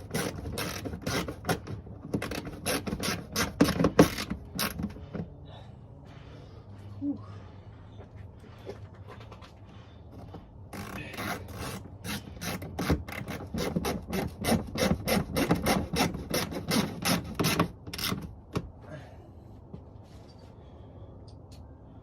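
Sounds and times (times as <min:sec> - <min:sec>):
hand tool rasping strokes: 0:00.0 - 0:05.1, 0:10.7 - 0:18.2.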